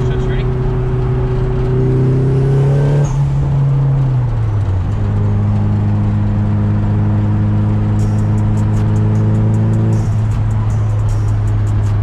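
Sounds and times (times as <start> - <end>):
car engine running from inside cabin: 0.0 - 12.0.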